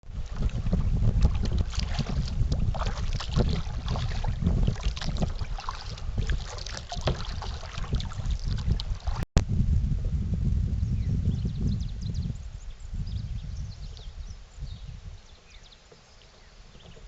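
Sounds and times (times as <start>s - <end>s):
paddle splashing in water: 0.0s - 9.3s, 15.1s - 17.0s
wind rumbling on microphone: 0.0s - 17.0s.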